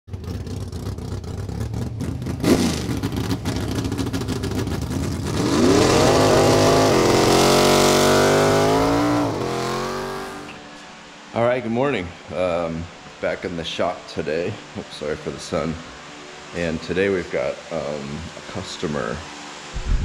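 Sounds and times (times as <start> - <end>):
engine running rough and revving: 0.1 - 10.6.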